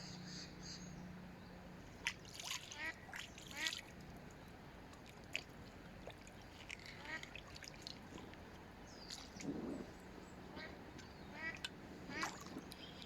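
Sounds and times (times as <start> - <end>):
faint bird calls: 0.0 - 1.1, 6.4 - 7.5, 8.1 - 13.0.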